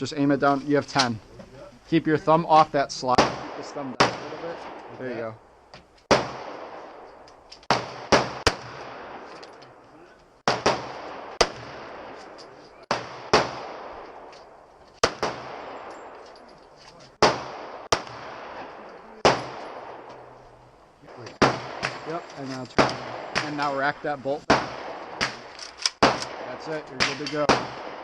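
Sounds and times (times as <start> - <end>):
pistol shots echoing: 3.1 - 4.9, 6.1 - 9.3, 10.4 - 14.3, 15.0 - 16.2, 17.2 - 20.3, 21.1 - 23.8, 24.4 - 28.0.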